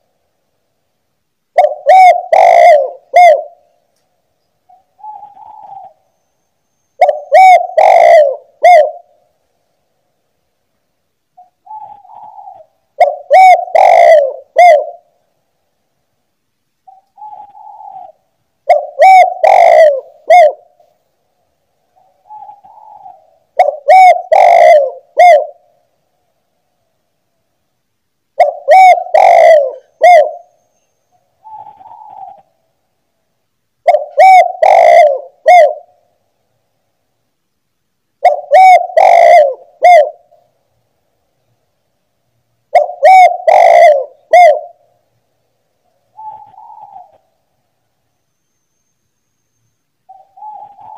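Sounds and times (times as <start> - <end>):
dove cooing: 1.5 - 3.8, 4.7 - 6.1, 7.0 - 9.2, 11.4 - 15.2, 16.9 - 20.8, 22.0 - 25.8, 28.4 - 30.6, 31.4 - 32.6, 33.8 - 36.1, 38.2 - 40.5, 42.7 - 45.0, 46.1 - 47.5, 50.1 - 50.9.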